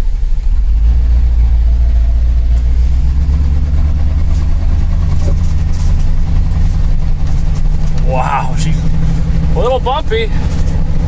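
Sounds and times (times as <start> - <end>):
truck engine low rumble: 0.0 - 11.0.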